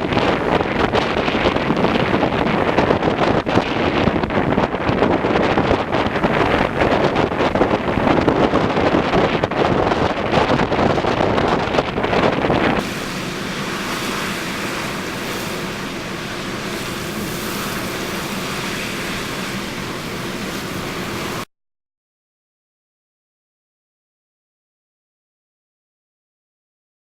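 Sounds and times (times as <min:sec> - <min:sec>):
wind buffeting microphone: 0:00.0 - 0:21.5
wind-driven waves rushing: 0:00.0 - 0:21.5.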